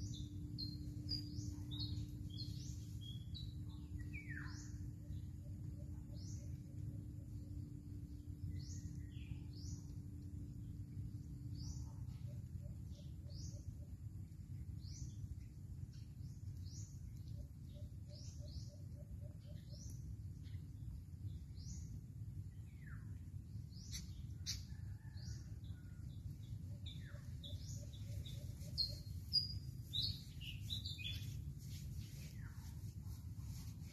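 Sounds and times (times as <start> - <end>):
low background rumble: 0.0 - 33.9
birds chirping: 26.8 - 31.4.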